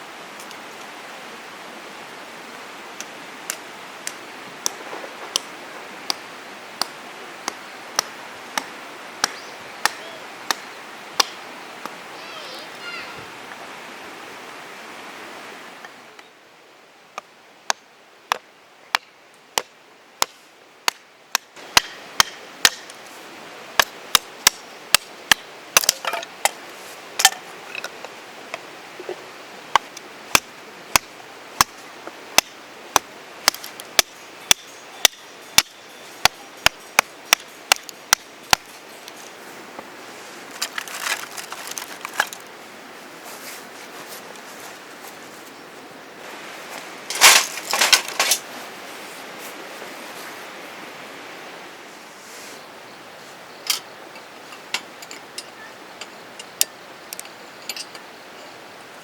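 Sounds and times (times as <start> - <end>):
short rustle: 38.4 - 50.7, 51.9 - 53.8.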